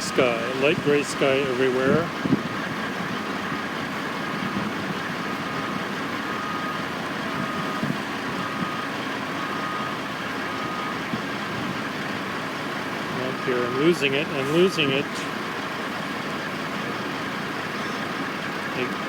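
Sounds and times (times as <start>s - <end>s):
construction machinery and engines: 0.0s - 19.0s
reversing alarm beeping: 4.2s - 11.3s, 13.2s - 15.1s.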